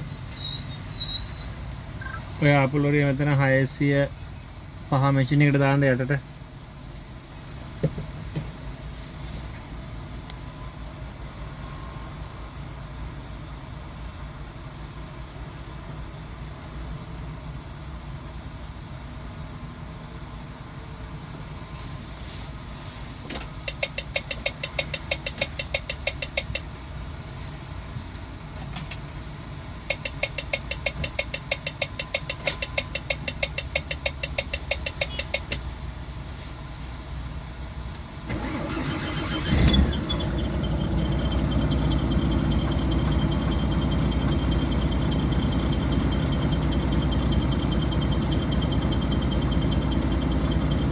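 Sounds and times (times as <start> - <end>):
engine starting with loud surge: 38.3 - 50.9
heavy machine engine running: 38.3 - 50.9.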